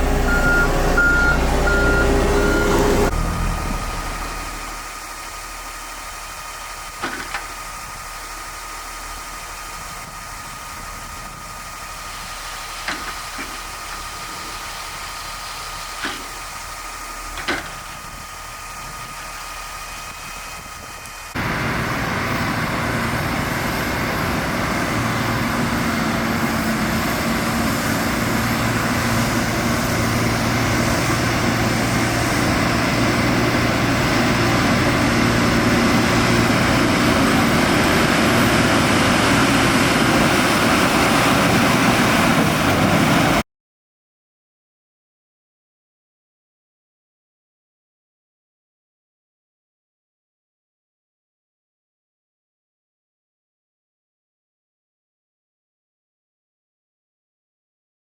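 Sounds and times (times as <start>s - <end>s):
motor running: 0.0s - 4.9s.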